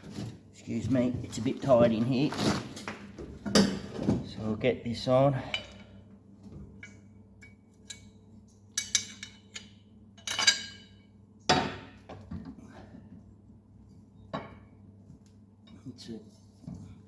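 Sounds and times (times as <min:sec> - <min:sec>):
metal tools clinking and clanking: 0:08.8 - 0:11.0.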